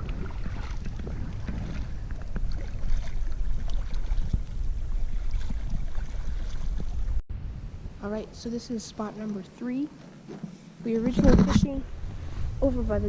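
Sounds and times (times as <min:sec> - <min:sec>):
water splashing around kayak: 0:00.0 - 0:07.2
wind rumbling on microphone: 0:00.0 - 0:09.6, 0:10.8 - 0:13.0.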